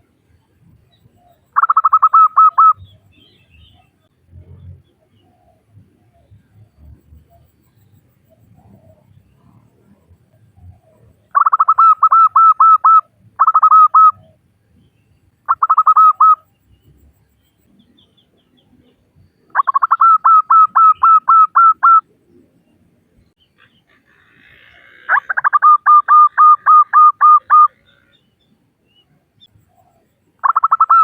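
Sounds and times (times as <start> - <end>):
dove calling staccato notes: 1.6 - 3.8, 10.6 - 14.4, 15.4 - 16.5, 19.5 - 22.0, 23.6 - 28.2, 30.4 - 31.0.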